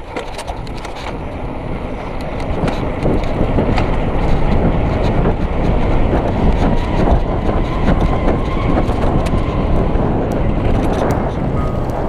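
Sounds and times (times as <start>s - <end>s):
wind on microphone: 0.0s - 12.0s
bike tyre rumble: 1.0s - 12.0s
bike rattles and clicks: 10.3s - 12.0s.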